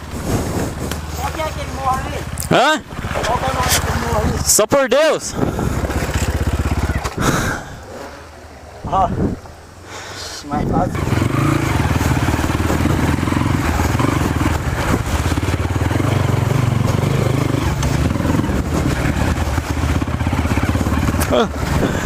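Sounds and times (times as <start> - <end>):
motorcycle engine running: 0.0 - 7.4, 10.9 - 22.0.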